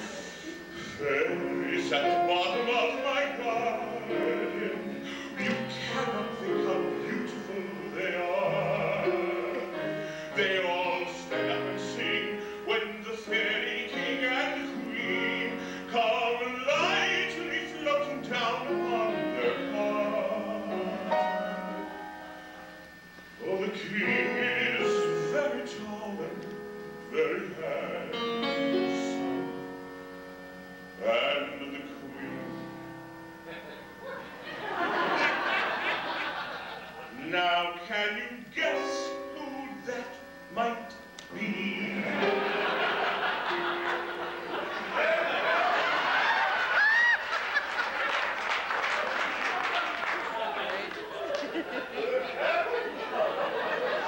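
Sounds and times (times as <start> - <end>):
piano accompaniment: 0.0 - 49.6
man singing operatically: 0.8 - 21.9, 23.4 - 29.6, 31.0 - 32.7, 37.1 - 42.6.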